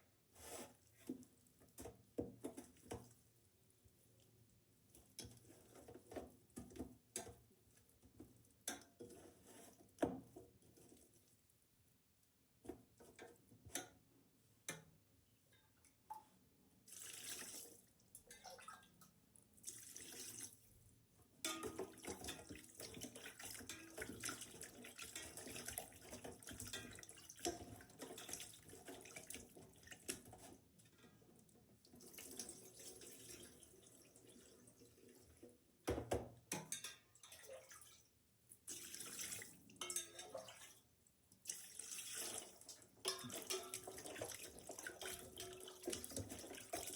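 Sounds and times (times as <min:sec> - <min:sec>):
water running from a tap: 0:21.9 - 0:30.1, 0:41.5 - 0:46.9.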